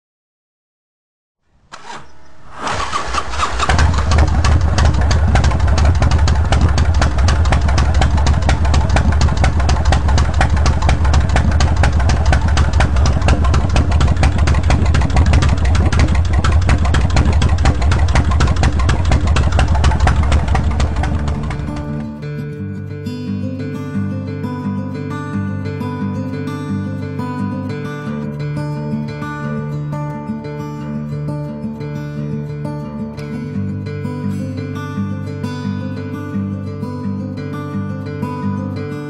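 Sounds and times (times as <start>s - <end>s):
motorcycle engine idling: 1.8s - 22.1s.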